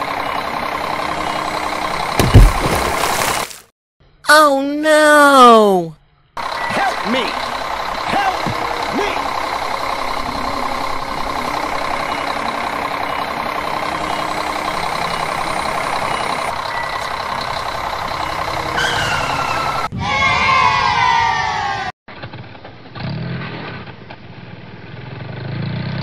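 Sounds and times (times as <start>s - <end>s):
heavy truck engine running: 0.0s - 3.5s, 6.4s - 19.9s.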